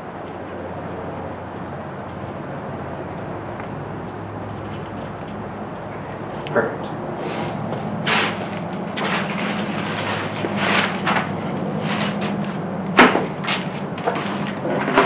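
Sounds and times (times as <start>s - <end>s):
steady low hum: 0.0s - 15.0s
metal parts knocking and scraping: 8.0s - 15.0s.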